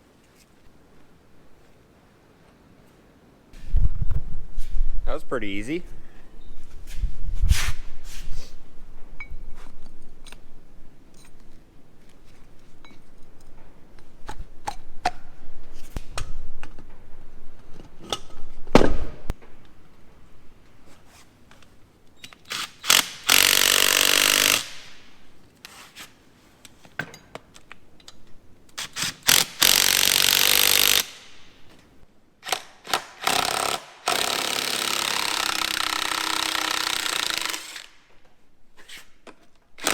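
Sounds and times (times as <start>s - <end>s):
impact wrench bursts: 22.5s - 25.0s, 28.8s - 31.3s, 32.4s - 38.0s.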